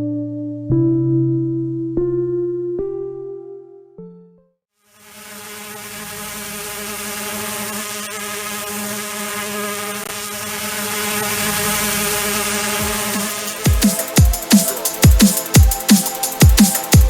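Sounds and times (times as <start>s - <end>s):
drone propellers buzzing: 5.1s - 17.0s.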